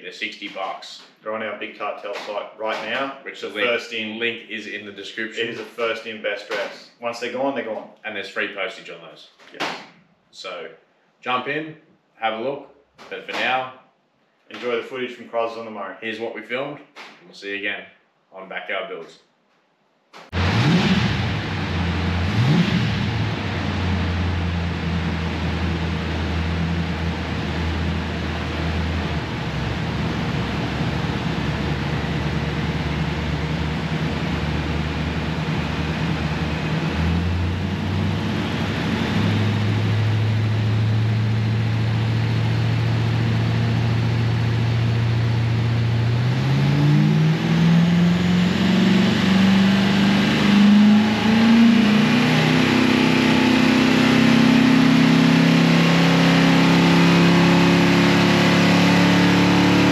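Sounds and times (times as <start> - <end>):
car engine revving: 20.3 - 59.9.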